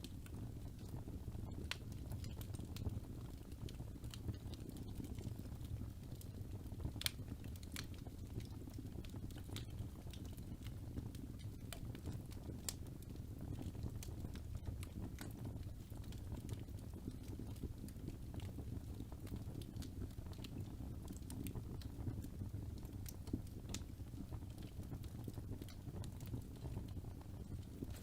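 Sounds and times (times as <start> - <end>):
fire crackles and pops: 0.0 - 28.0
fire flames rumbling: 0.0 - 28.0.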